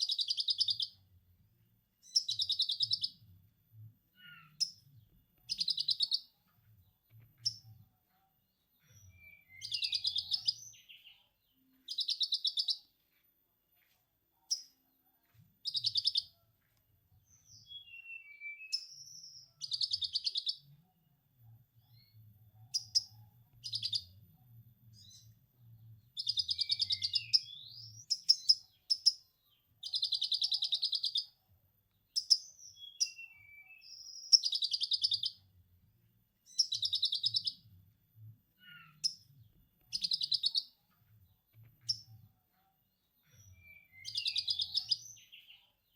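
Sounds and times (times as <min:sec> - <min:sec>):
faint low hum: 0:00.9 - 0:12.0, 0:18.9 - 0:30.0.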